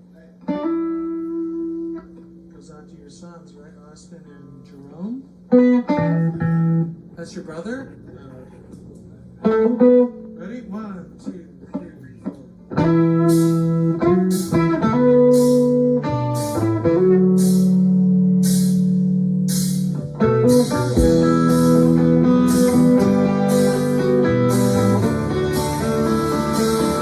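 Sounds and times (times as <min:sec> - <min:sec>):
rock band playing: 0:05.5 - 0:07.0, 0:12.7 - 0:27.0.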